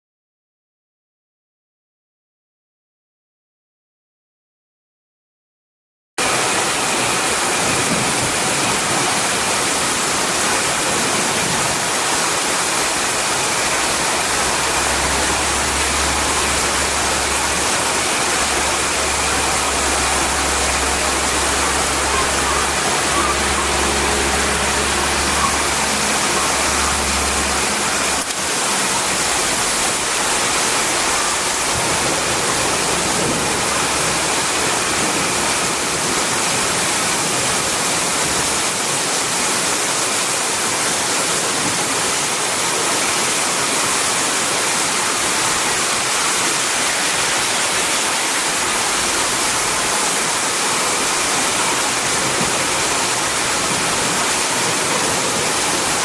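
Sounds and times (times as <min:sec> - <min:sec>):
heavy rain pouring: 0:06.2 - 0:56.0
low hum: 0:12.8 - 0:35.0.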